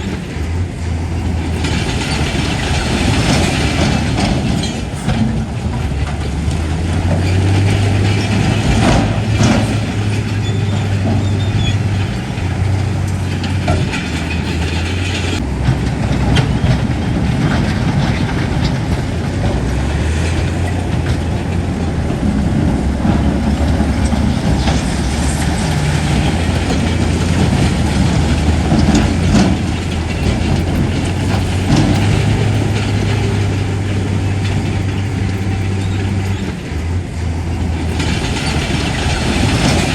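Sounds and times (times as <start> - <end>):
diesel engine drone: 0.0 - 39.9
metallic clanks: 0.0 - 39.9.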